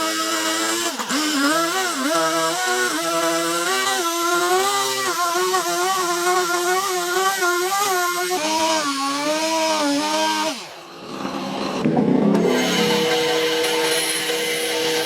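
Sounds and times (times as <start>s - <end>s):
power tool cutting wood: 0.0s - 15.0s.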